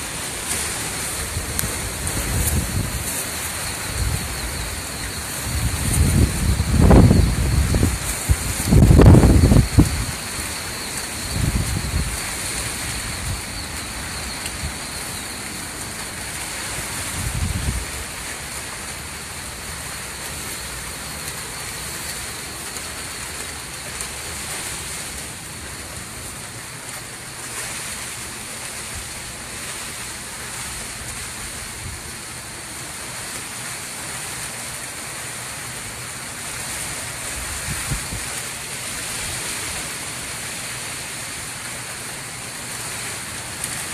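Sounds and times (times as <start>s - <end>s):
wind buffeting microphone: 0.0s - 23.7s, 37.1s - 39.8s
wind-driven rain hissing: 0.0s - 43.9s.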